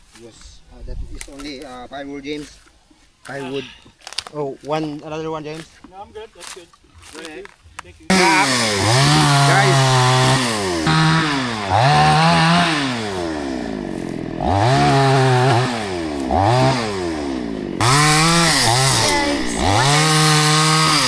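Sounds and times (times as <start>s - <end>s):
chainsaw cutting logs: 8.1s - 21.0s.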